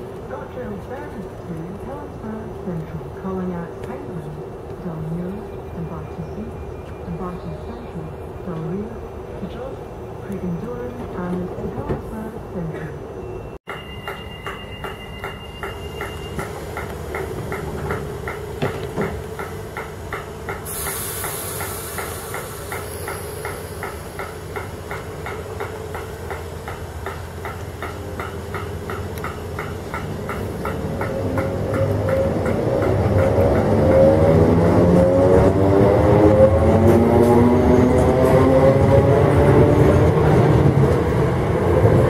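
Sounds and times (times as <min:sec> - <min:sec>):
sharp hiss of air: 0:20.6 - 0:24.3.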